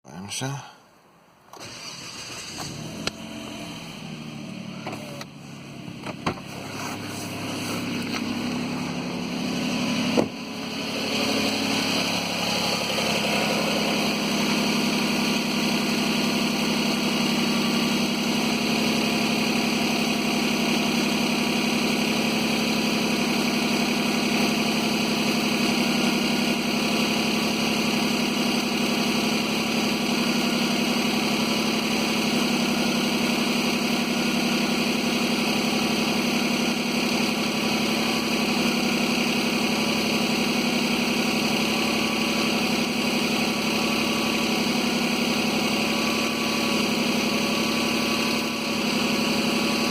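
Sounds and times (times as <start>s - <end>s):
car engine idling: 1.6s - 49.9s.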